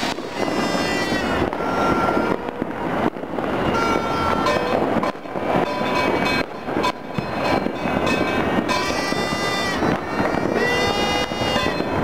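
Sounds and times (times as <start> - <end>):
steady horn-like tones: 0.0 - 2.8, 3.7 - 4.8, 8.7 - 12.0
fireworks and firecrackers popping: 0.0 - 12.0.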